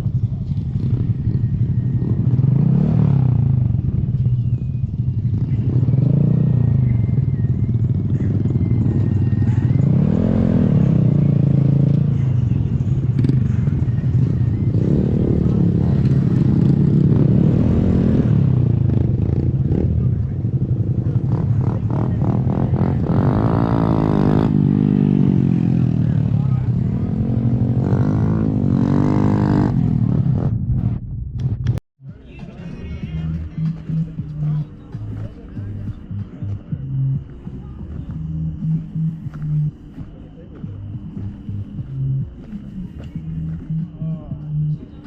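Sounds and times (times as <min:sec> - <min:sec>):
motorcycle engine accelerating: 0:00.0 - 0:31.8, 0:32.8 - 0:45.0.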